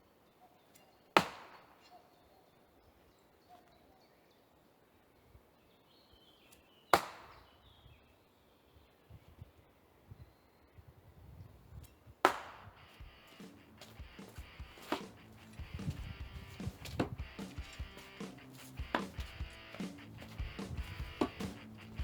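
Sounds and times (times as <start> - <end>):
throwing knives striking a target: 12.3 - 22.0.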